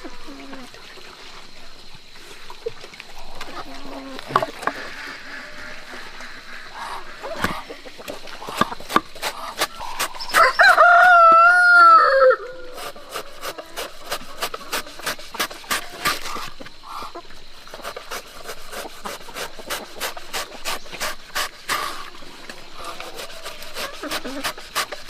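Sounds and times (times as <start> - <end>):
rooster crowing: 10.3 - 12.7.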